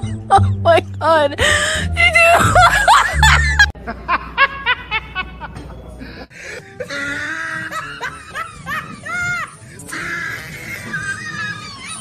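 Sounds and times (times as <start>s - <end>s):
background music: 0.0s - 3.8s
woman laughing: 1.4s - 5.4s, 6.8s - 9.6s.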